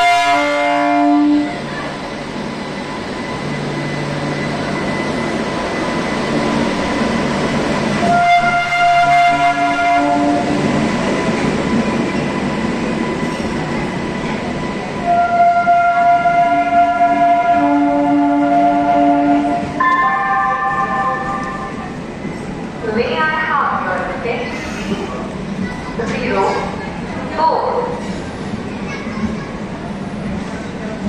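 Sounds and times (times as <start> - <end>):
train horn: 0.0 - 1.7, 8.0 - 10.6, 15.0 - 22.0
train rumbling along track: 0.0 - 31.0.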